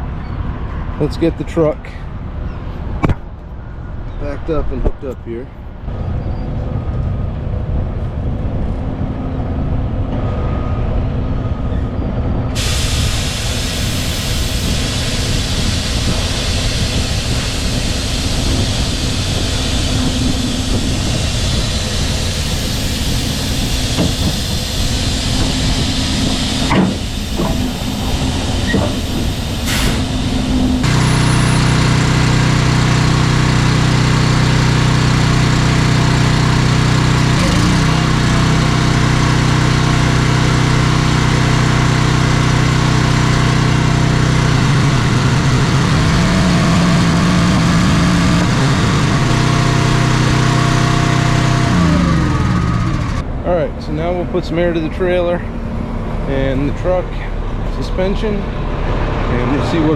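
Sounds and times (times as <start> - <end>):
sharp clicks or knocks: 3.0 - 3.3
diesel truck engine idling: 12.6 - 59.9.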